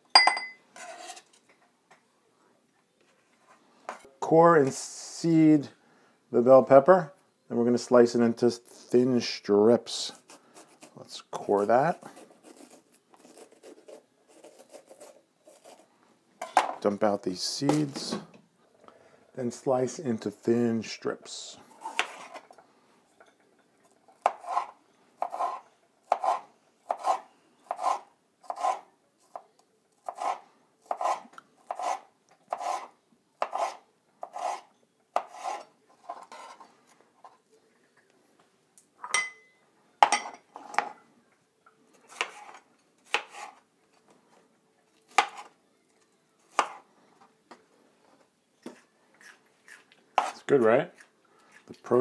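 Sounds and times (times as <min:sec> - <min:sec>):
knife slicing on cutting board: 0:30.0 - 0:34.6, 0:35.2 - 0:36.6.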